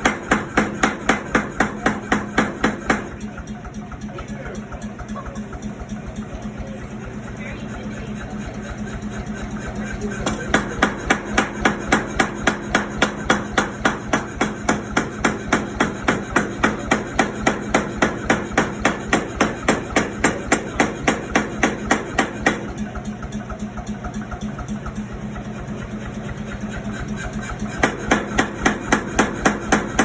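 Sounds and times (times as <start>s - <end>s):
hammer striking hot metal on anvil: 0.0s - 3.5s, 8.4s - 22.9s, 26.5s - 30.0s.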